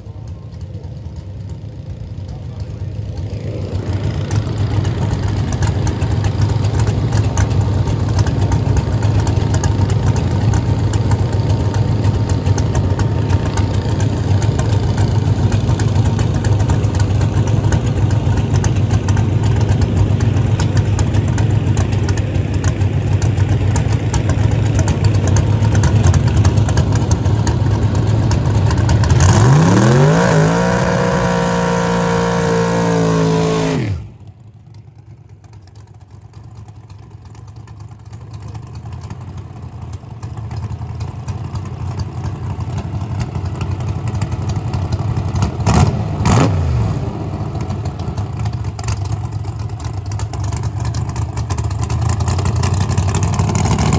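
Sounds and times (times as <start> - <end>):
race car engine rumbling: 0.0 - 53.9
engine revving hard: 28.0 - 34.2, 45.6 - 47.2, 53.5 - 53.9.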